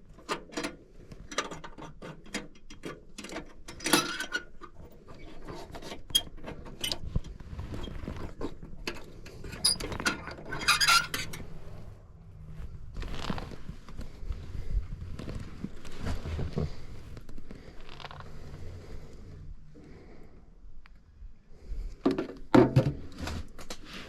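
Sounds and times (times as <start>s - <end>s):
low steady hum: 6.4s - 22.0s.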